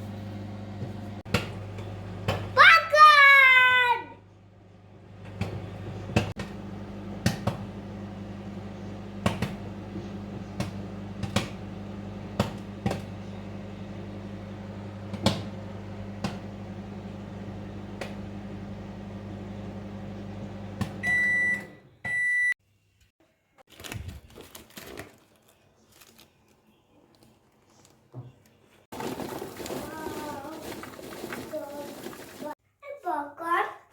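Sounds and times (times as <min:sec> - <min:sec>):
microwave oven hum: 0:00.0 - 0:22.6
popcorn popping: 0:05.2 - 0:08.2, 0:09.1 - 0:13.2, 0:28.9 - 0:32.5
microwave beeps: 0:20.1 - 0:22.6.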